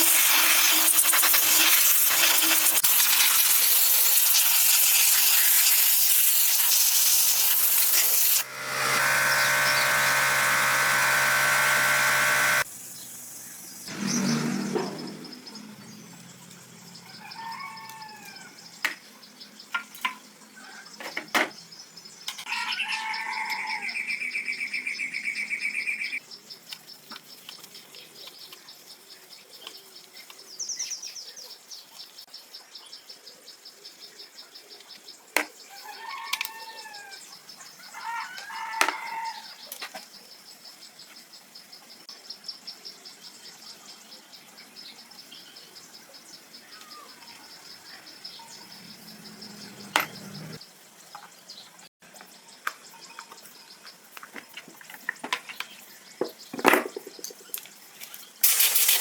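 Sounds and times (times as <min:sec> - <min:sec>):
buzzing trill: 0:07.1 - 0:12.7
pulsing high insect trill: 0:07.4 - 0:12.7
birds chirping: 0:43.6 - 0:51.8.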